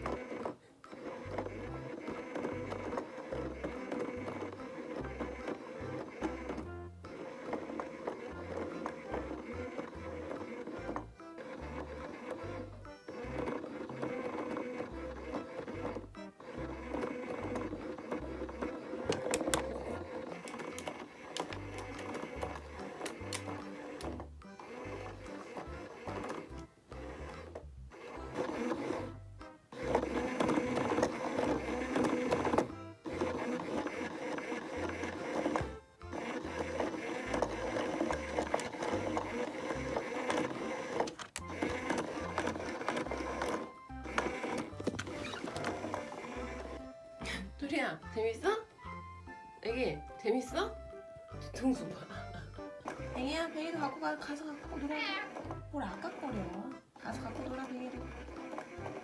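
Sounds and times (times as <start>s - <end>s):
small electric motor whirring: 0.0s - 47.1s, 51.8s - 59.0s
background music: 0.0s - 59.0s
sharp clicks: 19.0s - 29.0s.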